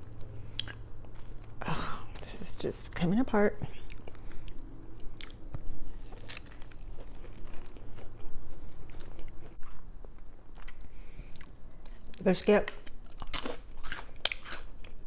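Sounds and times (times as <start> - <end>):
chewing biscuit: 0.1 - 15.0.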